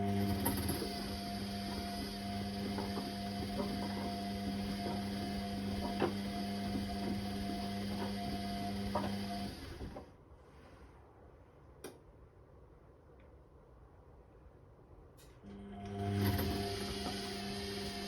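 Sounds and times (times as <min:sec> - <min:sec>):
washing machine drum running: 0:00.0 - 0:10.0, 0:15.8 - 0:18.0.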